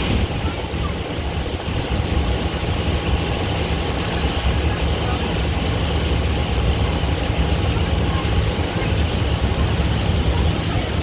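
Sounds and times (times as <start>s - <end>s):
boat engine humming: 0.0s - 11.0s
rushing wind and water: 0.0s - 11.0s.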